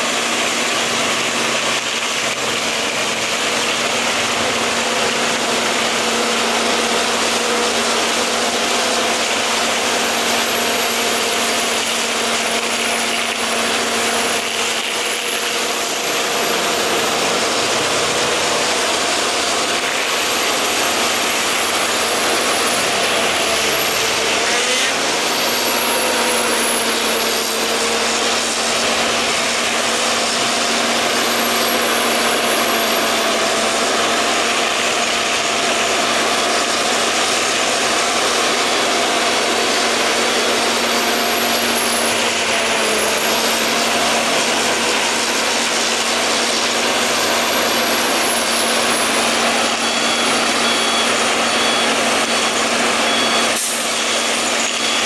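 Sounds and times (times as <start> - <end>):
machine humming: 0.1 - 55.0.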